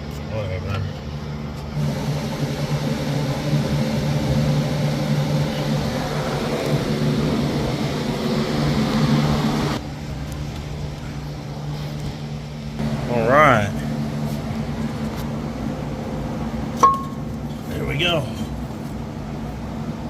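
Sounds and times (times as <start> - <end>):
low hum: 0.9 - 20.0
mechanical whir: 1.7 - 10.9.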